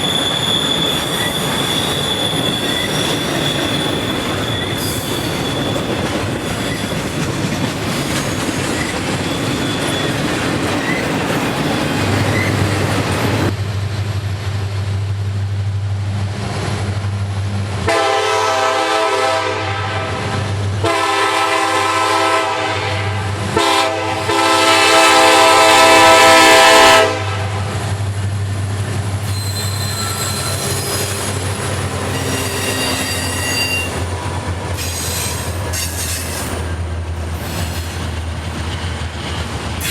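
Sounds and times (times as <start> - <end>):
train wheel squeal: 0.0 - 13.5, 27.6 - 39.9
freight train rolling by: 0.0 - 39.9
locomotive air horn blasts: 17.8 - 27.7.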